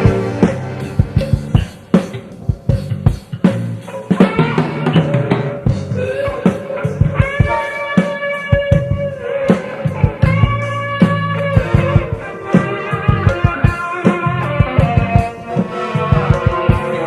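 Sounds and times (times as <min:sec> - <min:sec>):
guitar holding lead notes: 0:00.0 - 0:02.6, 0:03.9 - 0:17.0
drum strokes: 0:00.0 - 0:17.0
jazz fusion band playing: 0:00.0 - 0:17.0.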